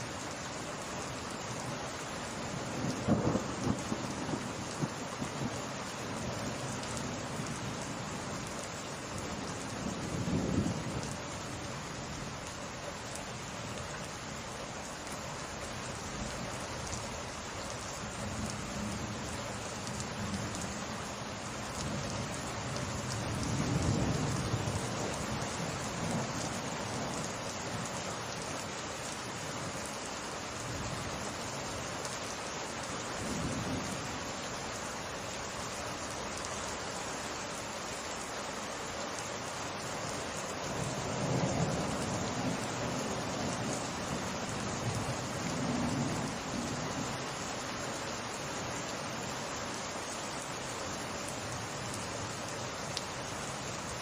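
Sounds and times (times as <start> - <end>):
steady rain falling: 0.0 - 54.0
low rumble of thunder: 2.5 - 8.3, 9.7 - 11.2, 21.8 - 27.9, 40.8 - 47.2.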